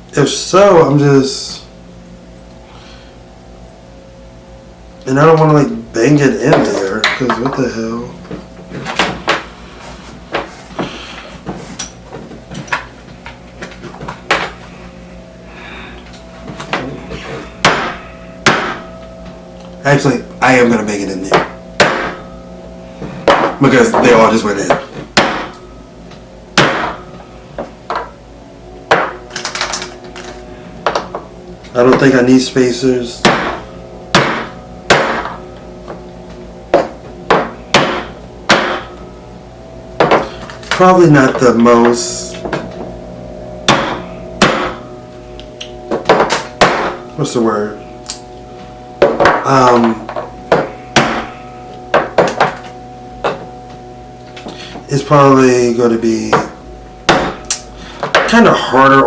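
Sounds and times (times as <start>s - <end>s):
hammer strikes on metal: 16.6s - 19.4s, 20.4s - 22.4s, 23.0s - 25.6s, 26.6s - 28.1s, 28.9s - 32.2s, 33.2s - 39.1s, 40.0s - 43.0s, 43.6s - 47.2s, 49.0s - 53.5s, 56.3s - 58.4s.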